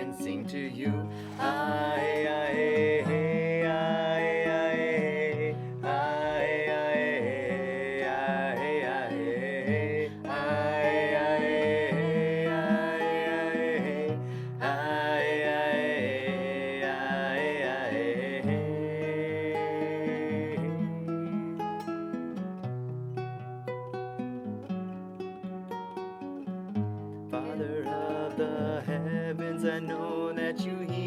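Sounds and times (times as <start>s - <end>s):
wordless devotional singing: 0.0s - 20.9s, 27.4s - 31.0s.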